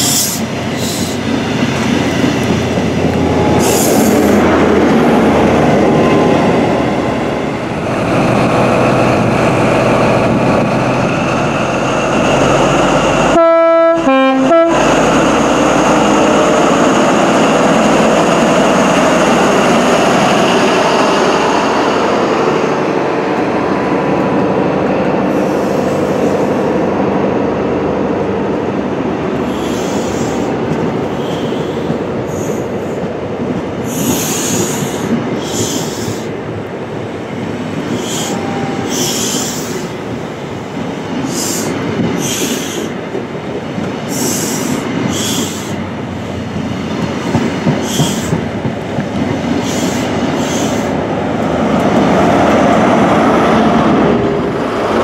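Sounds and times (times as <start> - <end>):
diesel train engine running: 0.0 - 55.0
two-tone train horn: 13.2 - 15.0, 38.1 - 39.0
train wheels squealing: 37.9 - 39.9, 44.1 - 45.8.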